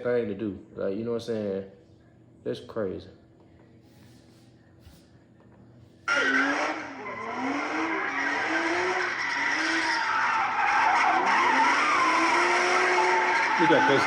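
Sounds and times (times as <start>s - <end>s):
car engine revving: 6.1s - 14.0s
tyres squealing in a burnout: 6.1s - 14.0s.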